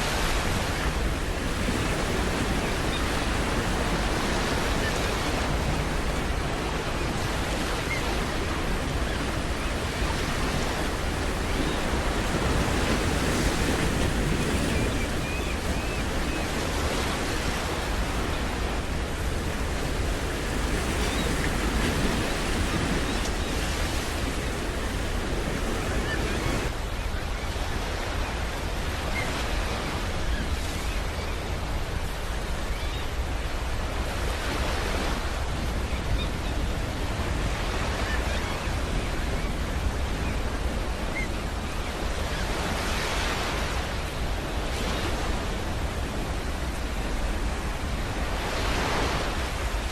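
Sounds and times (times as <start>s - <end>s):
waves washing against rocks: 0.0s - 26.8s
wind rumble on microphone: 0.0s - 49.9s.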